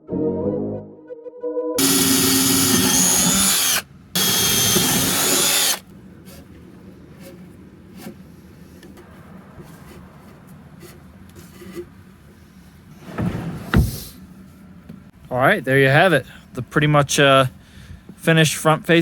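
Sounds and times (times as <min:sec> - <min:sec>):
cordless drill running: 0:01.8 - 0:05.9.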